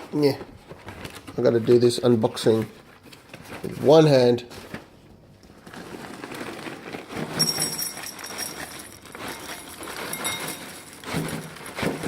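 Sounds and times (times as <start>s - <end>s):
cereal bag crinkling: 5.5s - 12.0s.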